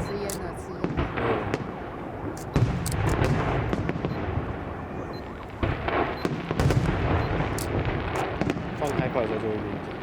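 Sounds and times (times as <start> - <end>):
fireworks booms and crackles: 0.0 - 10.0.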